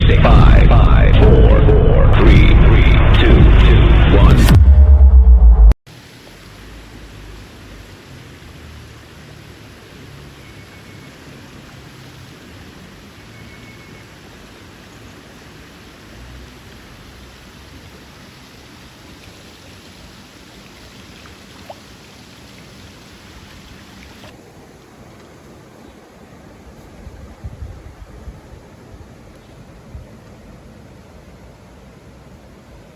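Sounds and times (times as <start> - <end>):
creek water running over rocks: 5.9 - 32.9.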